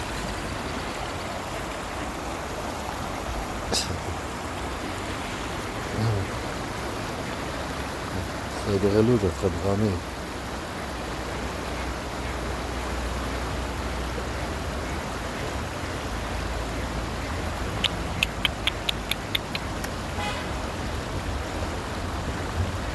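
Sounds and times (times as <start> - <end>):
short nasal bird call: 17.8 - 19.9
short sharp bird calls: 17.8 - 19.9.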